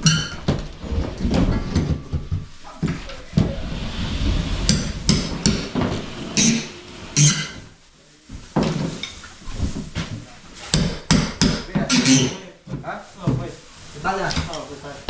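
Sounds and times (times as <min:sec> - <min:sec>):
irregular knocks and clatter: 0:00.0 - 0:12.0.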